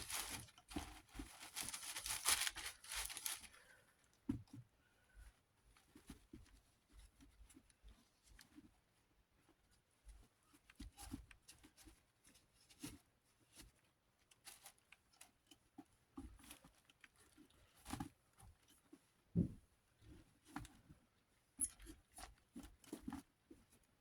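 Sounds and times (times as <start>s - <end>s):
rubbing and scraping of fan parts: 0.0s - 3.6s.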